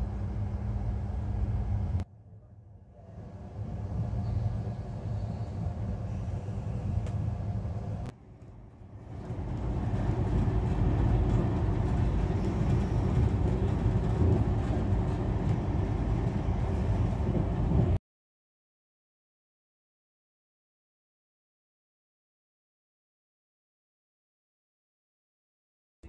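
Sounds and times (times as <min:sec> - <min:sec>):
train wheels rumbling on rails: 0:03.0 - 0:18.0.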